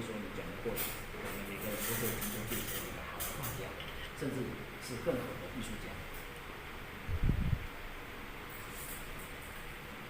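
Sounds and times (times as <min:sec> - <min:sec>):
steady background hiss: 0:00.0 - 0:10.0.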